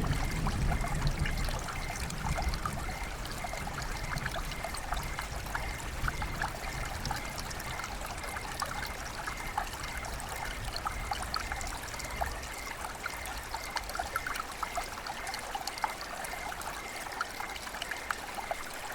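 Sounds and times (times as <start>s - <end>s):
water trickling and splashing: 0.0s - 18.9s.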